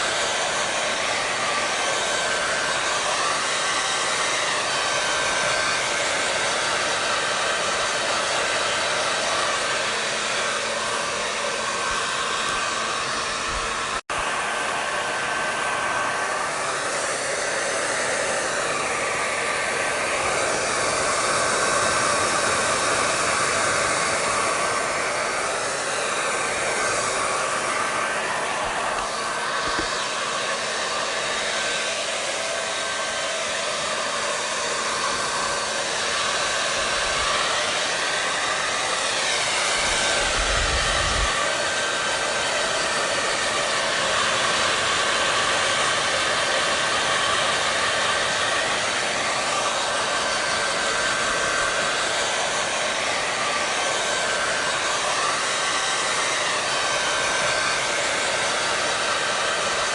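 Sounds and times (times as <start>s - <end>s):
blow dryer running: 0.0s - 59.9s.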